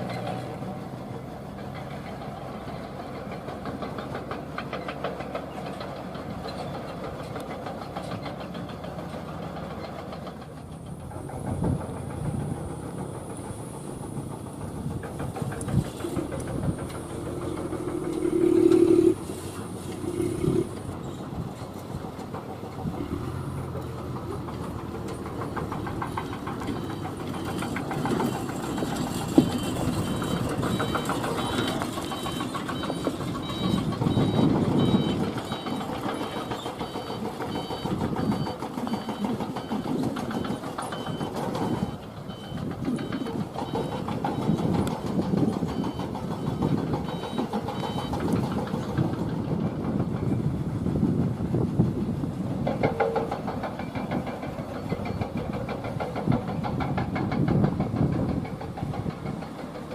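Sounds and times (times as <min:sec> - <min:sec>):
truck engines rumbling: 0:00.0 - 0:59.9
high beeping: 0:17.7 - 0:19.3, 0:28.3 - 0:44.6.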